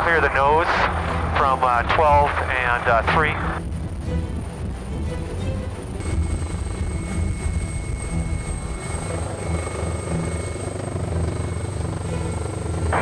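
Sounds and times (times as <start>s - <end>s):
helicopter hovering: 0.0s - 13.0s
thin high whine: 6.0s - 13.0s.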